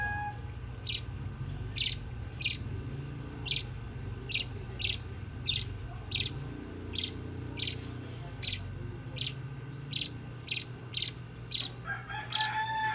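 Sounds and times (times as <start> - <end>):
low steady hum: 0.0 - 12.9
budgerigar chick calling: 0.2 - 1.1, 1.8 - 2.6, 3.4 - 3.7, 4.3 - 8.6, 9.2 - 12.6.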